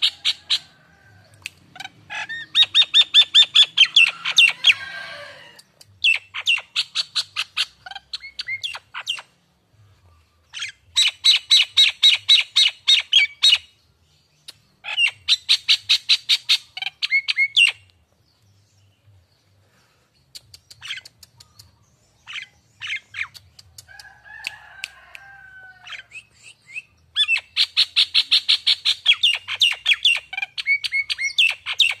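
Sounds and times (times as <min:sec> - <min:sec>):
bird chattering calls: 0:01.7 - 0:04.9.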